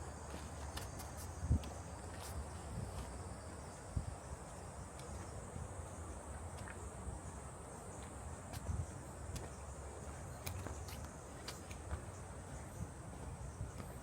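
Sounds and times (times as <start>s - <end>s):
footsteps on trail: 0.0s - 3.8s, 8.0s - 14.0s
insects droning: 0.0s - 14.0s.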